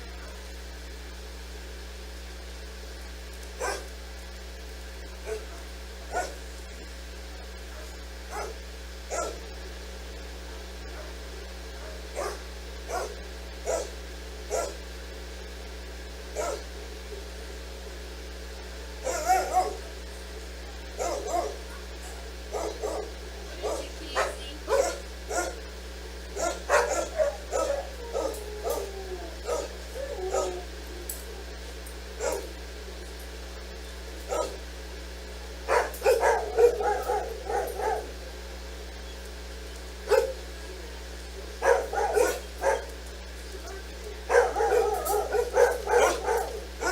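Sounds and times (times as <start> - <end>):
steady low hum: 0.0 - 46.9
dog barking and yipping: 3.6 - 4.0, 5.2 - 6.4, 7.7 - 9.5, 10.9 - 14.8, 16.4 - 16.8, 19.0 - 20.1, 20.7 - 25.7, 26.3 - 30.8, 32.2 - 32.6, 34.2 - 34.6, 35.7 - 38.3, 40.1 - 40.5, 41.4 - 43.0, 43.6 - 46.9
dog whining: 19.0 - 19.9, 26.4 - 31.6, 35.7 - 38.2, 41.6 - 42.9, 43.6 - 46.9.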